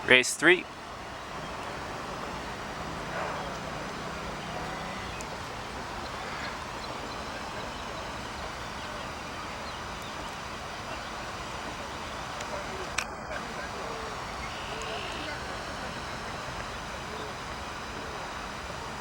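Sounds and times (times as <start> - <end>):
distant voices: 0.0 - 19.0
low hum: 0.0 - 19.0.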